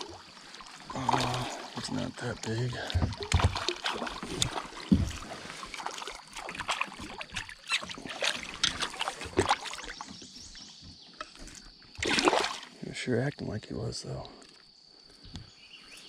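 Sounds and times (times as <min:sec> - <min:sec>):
clicks and knocks against kayak hull: 0:02.7 - 0:05.8, 0:06.6 - 0:12.1, 0:15.2 - 0:15.6.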